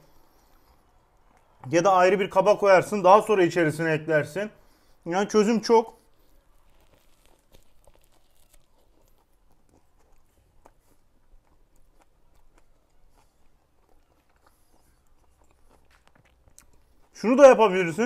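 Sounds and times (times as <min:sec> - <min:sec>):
faint chewing: 0:00.0 - 0:01.8, 0:05.8 - 0:17.8
crusty bread crunching: 0:05.3 - 0:18.0.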